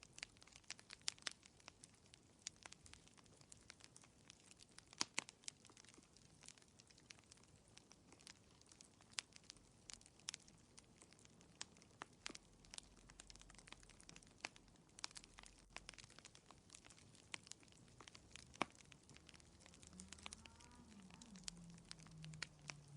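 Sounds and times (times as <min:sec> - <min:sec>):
wood fire crackling: 0:00.0 - 0:22.9.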